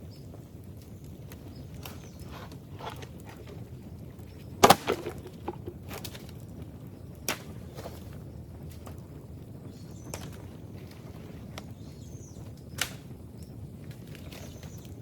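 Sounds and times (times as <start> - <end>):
bamboo cracking and splintering: 1.8 - 3.6, 4.6 - 6.4
light bamboo snaps: 12.8 - 13.1.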